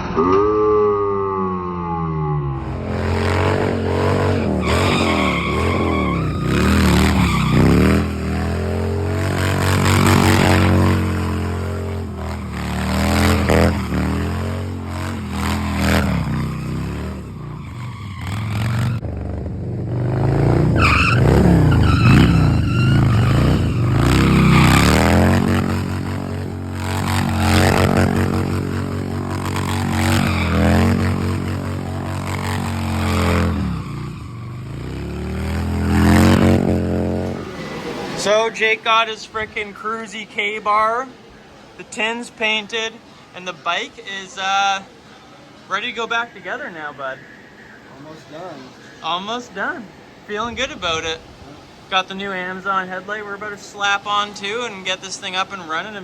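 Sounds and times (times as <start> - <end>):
vehicle motors revving: 1.6 - 38.7.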